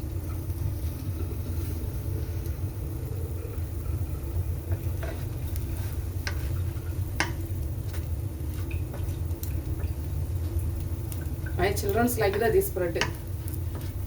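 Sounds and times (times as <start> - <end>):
bread sizzling in a pan: 0.0 - 14.0
steady low rumble: 0.0 - 14.0
utensil scrapes and taps: 4.7 - 8.0, 13.0 - 14.0.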